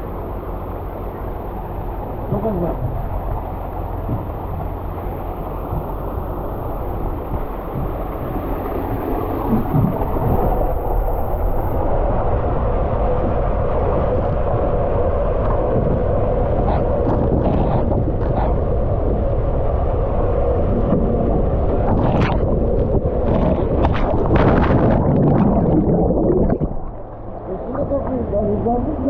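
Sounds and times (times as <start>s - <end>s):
water rushing down slide: 20.7s - 27.7s
water splashes: 20.8s - 28.2s.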